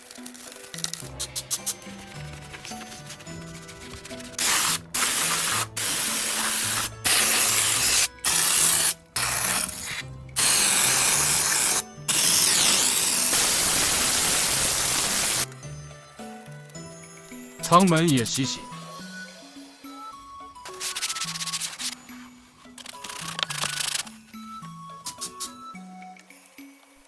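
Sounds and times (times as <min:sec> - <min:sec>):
light background music: 0:00.0 - 0:27.0
water jet spraying: 0:10.4 - 0:15.5.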